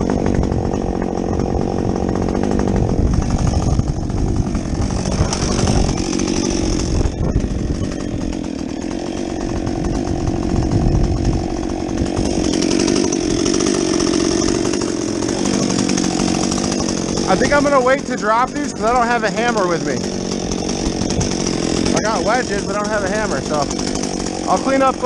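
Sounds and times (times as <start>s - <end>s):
chainsaw cutting wood: 0.0s - 25.0s.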